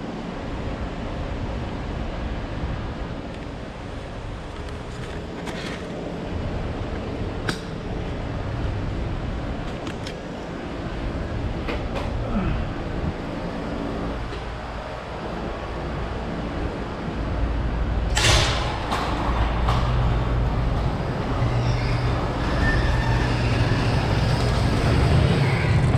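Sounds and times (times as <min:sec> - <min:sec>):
bicycle clicks and rattles: 0:04.4 - 0:06.0
bicycle rolling and wind noise: 0:12.7 - 0:25.9.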